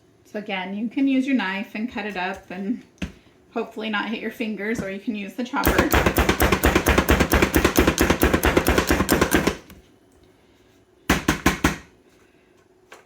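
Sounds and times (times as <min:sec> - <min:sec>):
kitchen chopper striking: 0:05.6 - 0:09.7.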